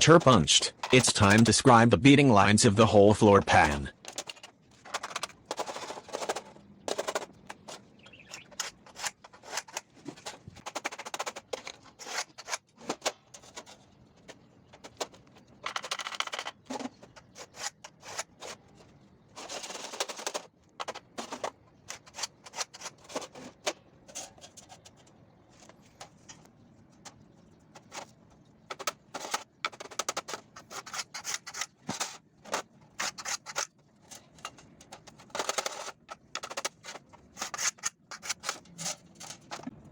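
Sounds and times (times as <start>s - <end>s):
tools clicking and tapping: 0.0s - 1.7s, 28.7s - 39.7s
scriber scratching sheet metal: 28.7s - 39.7s.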